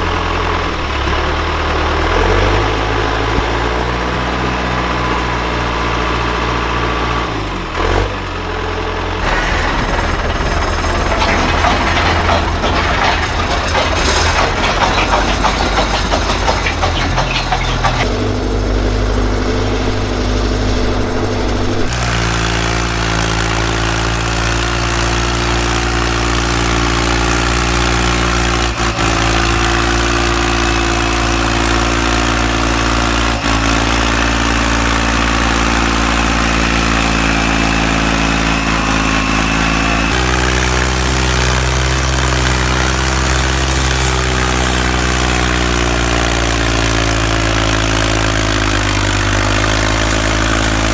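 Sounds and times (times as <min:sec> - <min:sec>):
tractor engine idling: 0:00.0 - 0:50.9.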